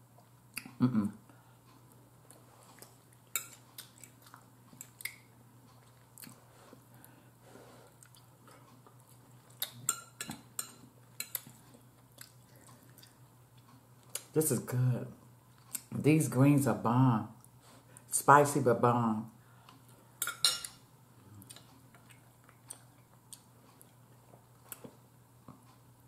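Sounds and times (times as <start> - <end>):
person chewing: 0.2 - 0.9, 1.6 - 14.3, 15.5 - 15.9, 19.6 - 25.8.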